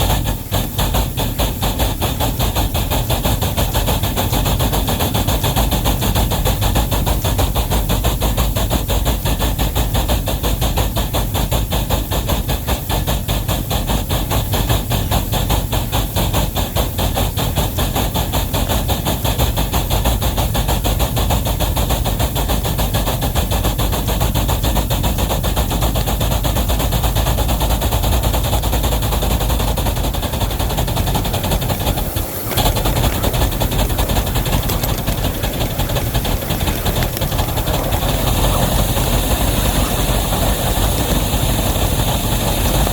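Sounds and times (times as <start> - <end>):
continuous steam hiss: 0.0 - 42.9
steam locomotive exhaust beats: 0.0 - 42.9.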